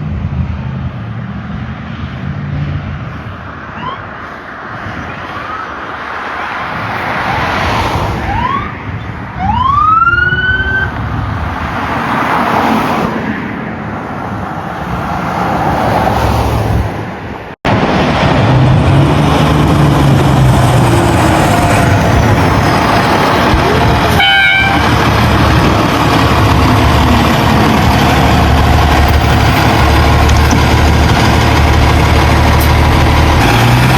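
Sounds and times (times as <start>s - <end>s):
engine and road noise: 0.0s - 33.9s
fire engine siren whoops: 3.6s - 4.3s, 5.0s - 6.2s, 7.0s - 11.0s, 20.5s - 26.7s.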